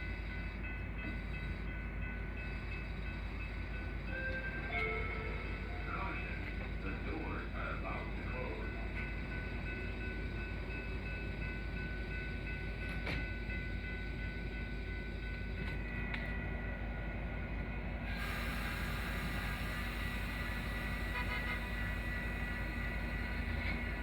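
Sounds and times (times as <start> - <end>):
train low rumble: 0.0 - 24.0
thin steady whine: 18.1 - 24.0.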